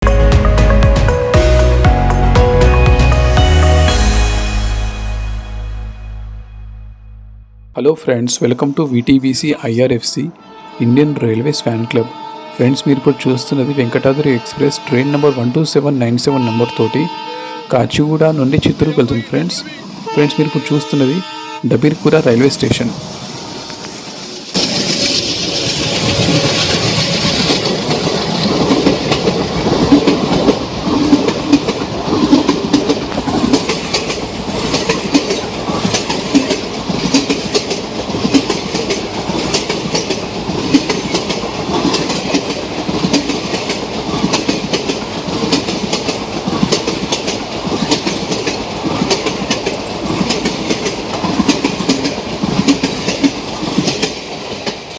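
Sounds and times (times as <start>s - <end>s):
train coaches rumbling past: 0.0s - 16.2s, 16.9s - 54.9s
clickety-clack of wheels on rails: 23.2s - 54.9s.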